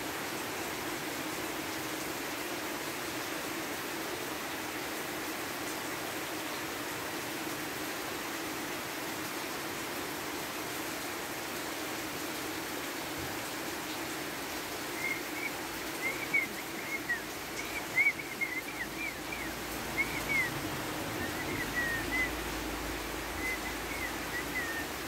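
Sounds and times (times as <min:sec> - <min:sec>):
steady rain: 0:00.0 - 0:25.0
small bird chirping: 0:15.0 - 0:20.5.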